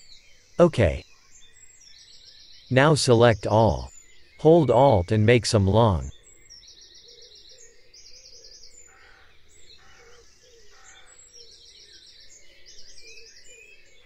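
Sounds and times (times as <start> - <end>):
birds chirping: 0.6 - 1.7, 2.5 - 6.7.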